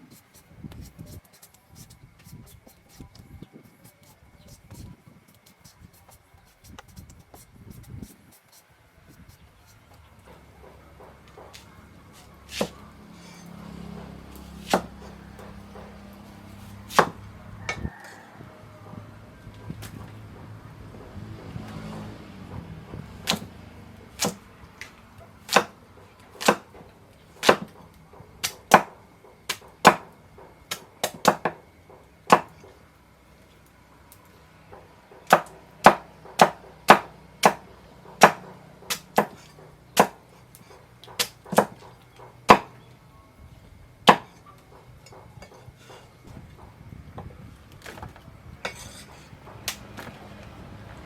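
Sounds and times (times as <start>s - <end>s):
knife chopping on wooden board: 10.6s - 17.3s, 21.9s - 25.8s, 26.4s - 26.8s, 27.4s - 27.8s, 28.4s - 30.1s, 30.7s - 31.6s, 32.3s - 32.7s, 35.1s - 42.8s, 44.1s - 44.4s.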